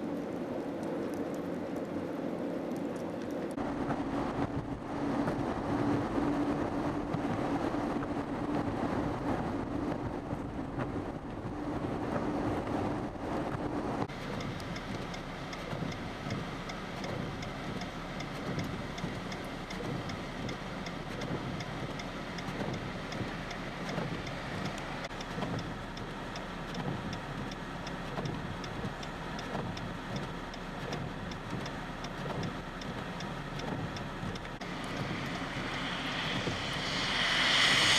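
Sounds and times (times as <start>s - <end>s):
road vehicle noise: 0.0s - 37.9s
faint regular ticking: 14.0s - 36.8s.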